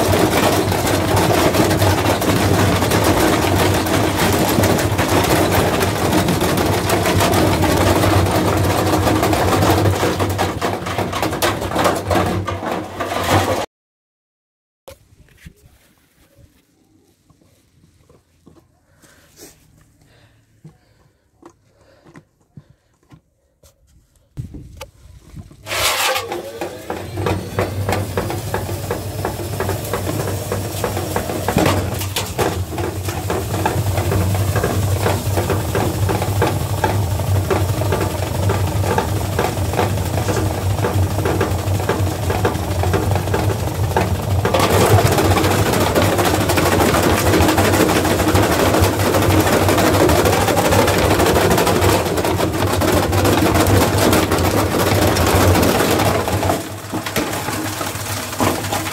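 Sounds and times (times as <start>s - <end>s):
washing machine motor hum: 0.0s - 11.2s, 25.6s - 58.9s
drum rattling and knocking: 0.0s - 13.7s, 25.7s - 58.9s.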